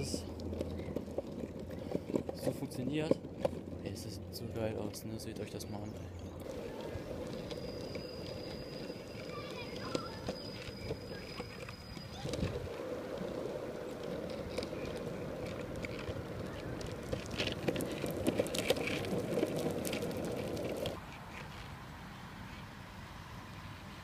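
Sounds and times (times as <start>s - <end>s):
wheels clicking over joints: 0.0s - 21.7s
longboard wheels rolling on pavement: 0.0s - 23.9s.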